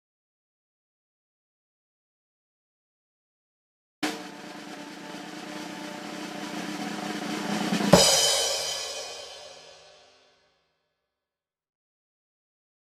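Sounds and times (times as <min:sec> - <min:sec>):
snare drum roll: 0:04.0 - 0:10.2
crash cymbal hit: 0:04.0 - 0:10.3.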